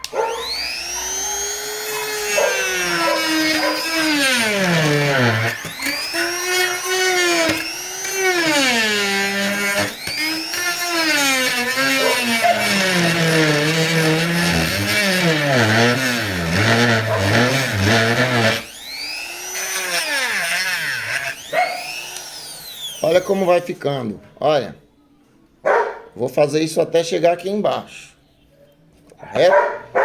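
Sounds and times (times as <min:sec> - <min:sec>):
rotary tool grinding plastic pipe: 0:00.0 - 0:23.7.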